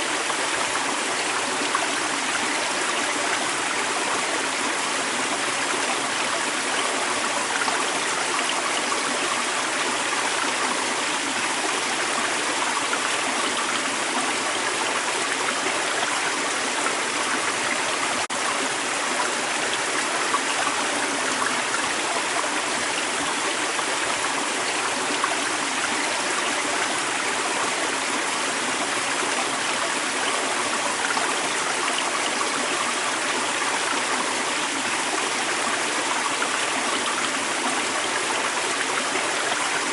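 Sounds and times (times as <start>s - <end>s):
creek water running over rocks: 0.0s - 39.9s.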